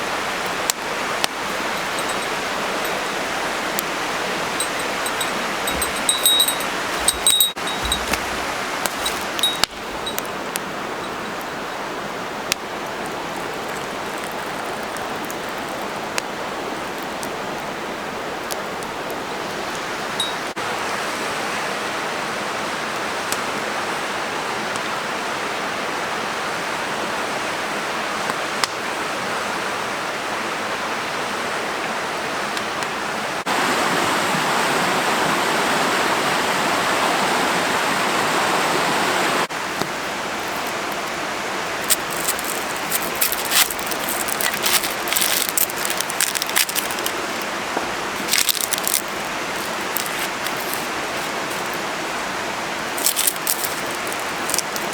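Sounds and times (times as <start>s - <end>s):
sharp crackles and clicks: 0.4s - 3.0s, 4.6s - 10.7s, 12.5s - 17.8s, 39.8s - 51.8s, 52.9s - 54.9s.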